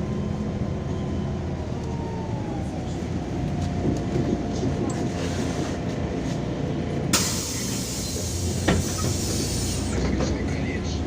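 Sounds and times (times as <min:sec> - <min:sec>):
bus engine and road noise: 0:00.0 - 0:11.0
compressed air hiss: 0:07.2 - 0:09.9.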